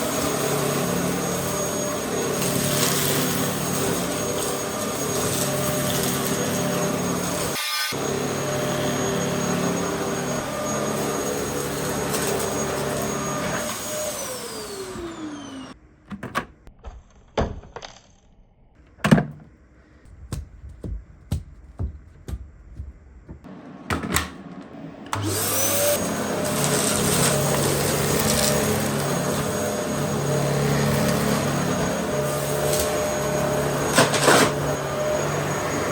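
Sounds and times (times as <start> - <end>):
vacuum cleaner whining: 0.0 - 15.8, 23.4 - 35.9.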